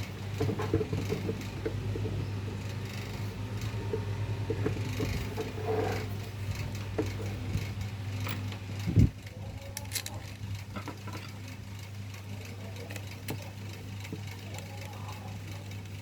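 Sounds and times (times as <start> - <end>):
handling clicks and scrapes: 0.0 - 11.9
fan motor humming: 0.0 - 16.0.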